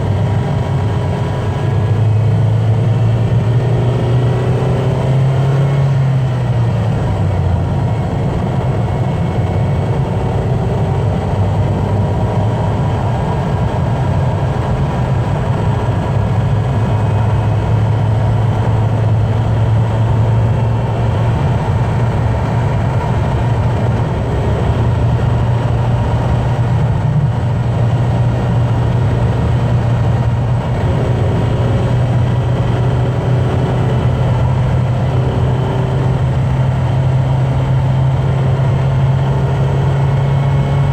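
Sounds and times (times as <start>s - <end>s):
car engine drone: 0.0s - 40.9s
tyre and road noise: 0.0s - 40.9s.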